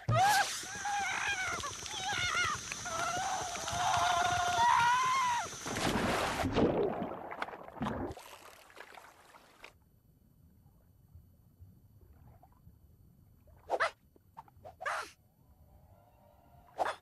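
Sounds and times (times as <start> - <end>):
bubbling water swoosh: 5.7 - 8.6.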